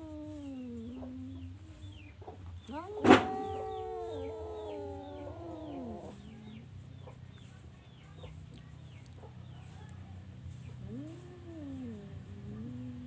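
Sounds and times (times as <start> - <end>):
low steady hum: 0.0 - 9.2.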